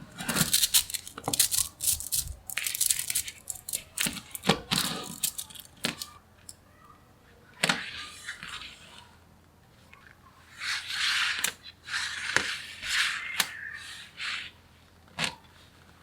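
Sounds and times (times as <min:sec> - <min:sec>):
magnetic metal balls clicking: 0:00.3 - 0:06.1.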